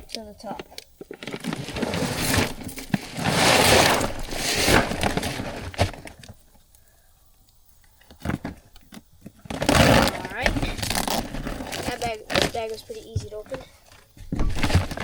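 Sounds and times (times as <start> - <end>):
bag and corn rustling: 0.4 - 6.4, 9.3 - 13.7, 14.4 - 15.0.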